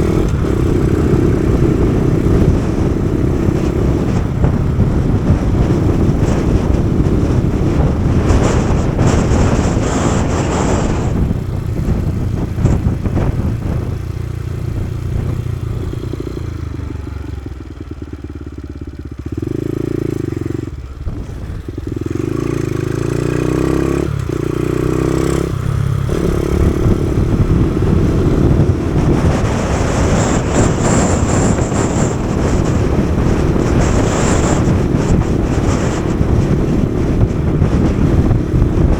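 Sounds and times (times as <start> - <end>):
motorcycle engine running: 0.0 - 38.9
wind rush on microphone: 0.0 - 38.9.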